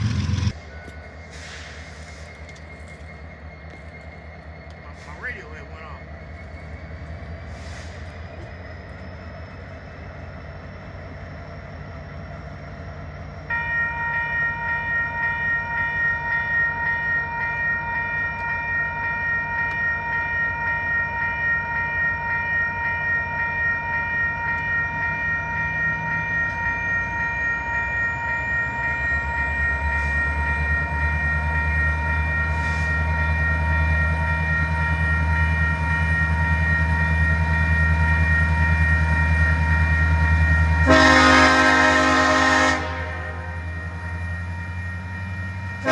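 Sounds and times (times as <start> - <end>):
locomotive engine rumbling: 0.0 - 45.9
train air horn: 40.8 - 43.6.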